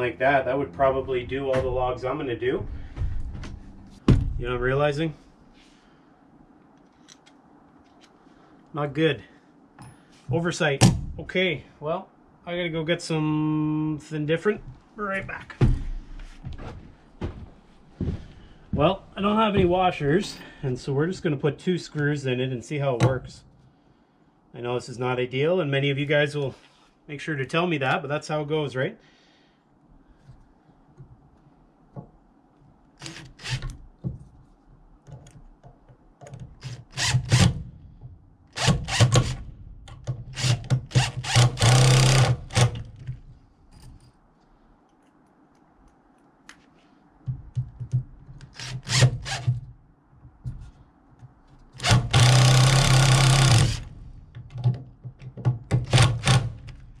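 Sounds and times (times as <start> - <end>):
power drill driving screws: 38.6 - 39.4, 40.3 - 42.9, 48.5 - 49.5, 51.8 - 53.9, 55.8 - 56.7.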